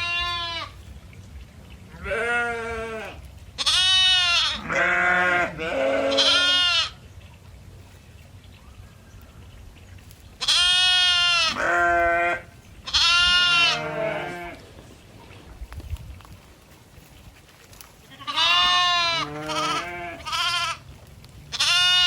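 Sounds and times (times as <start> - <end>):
goats bleating: 0.0 - 0.8, 2.0 - 7.0, 10.4 - 14.7, 18.1 - 20.9, 21.5 - 22.0.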